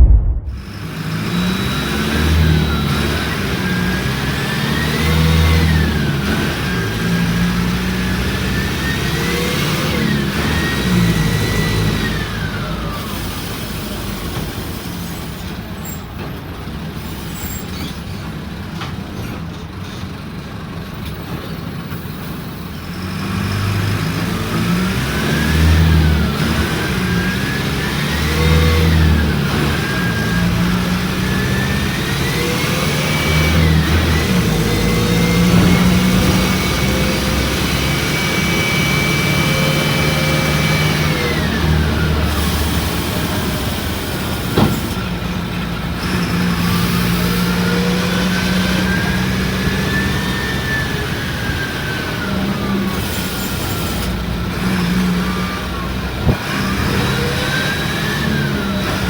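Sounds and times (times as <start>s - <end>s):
engine whine: 0.0s - 1.1s, 32.1s - 42.2s
bus engine accelerating: 0.0s - 59.0s.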